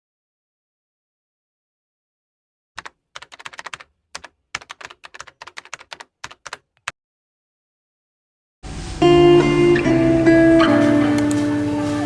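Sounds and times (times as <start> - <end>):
computer keyboard typing: 2.8 - 6.9.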